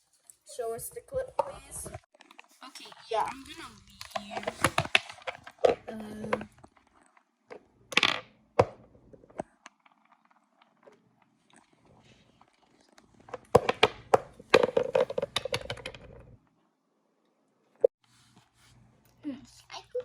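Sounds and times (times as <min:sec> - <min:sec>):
plastic objects rustling: 0:00.0 - 0:16.4
plastic objects tapping: 0:01.4 - 0:11.7, 0:12.4 - 0:16.3
plastic clicks and scrapes: 0:04.0 - 0:16.3.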